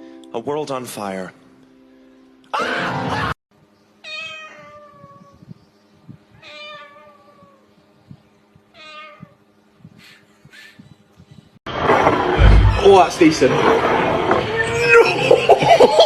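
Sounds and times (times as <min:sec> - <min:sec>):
cat meowing: 0:04.0 - 0:05.4, 0:06.3 - 0:07.7, 0:08.7 - 0:09.4.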